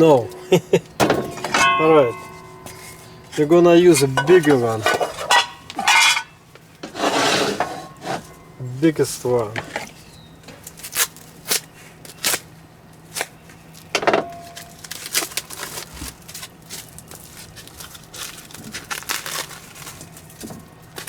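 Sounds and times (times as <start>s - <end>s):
metal cookware clanking: 0.0s - 8.6s, 9.4s - 10.0s, 14.0s - 14.7s.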